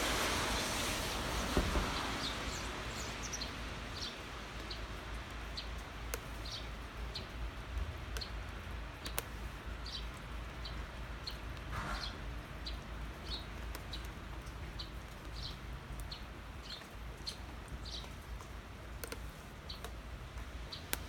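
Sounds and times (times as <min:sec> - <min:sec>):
light rain hiss: 0:00.0 - 0:21.0
water drip clicks: 0:03.3 - 0:11.7, 0:12.6 - 0:21.0.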